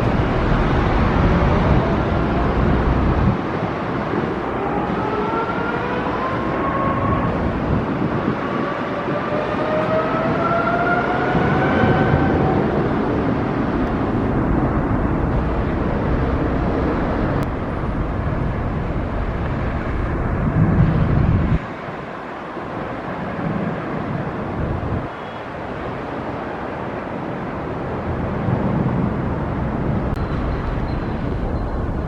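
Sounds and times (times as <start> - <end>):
low rumble: 0.0 - 3.4, 13.0 - 21.6
vehicle whine rising in pitch: 0.0 - 21.7
vehicles passing: 0.0 - 32.0.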